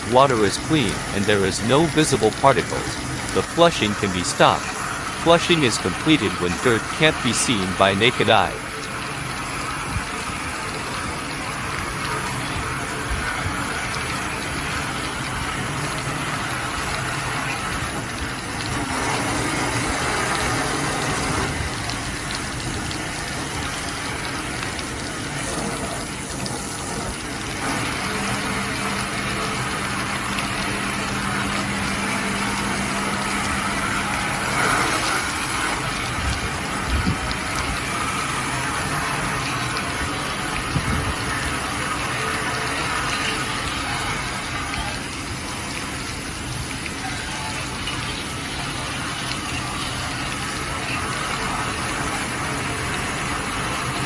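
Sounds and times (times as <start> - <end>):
high-pressure water spraying: 0.0 - 54.0.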